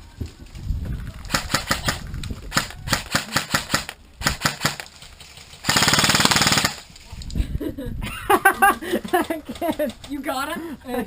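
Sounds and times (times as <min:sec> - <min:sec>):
full-auto airsoft burst: 0:01.3 - 0:04.8, 0:05.6 - 0:06.8.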